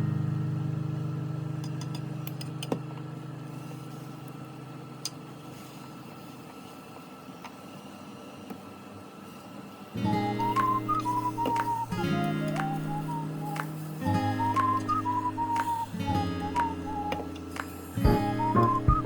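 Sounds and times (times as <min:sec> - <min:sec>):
acoustic guitar low note: 0:10.0 - 0:19.0.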